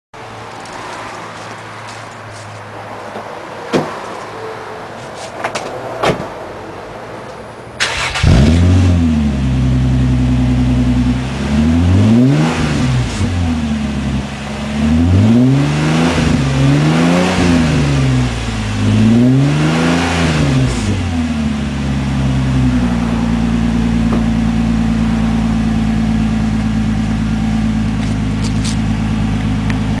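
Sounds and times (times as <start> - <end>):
car engine idling: 7.8 - 19.5, 20.5 - 30.0
car engine starting and revving: 7.8 - 30.0.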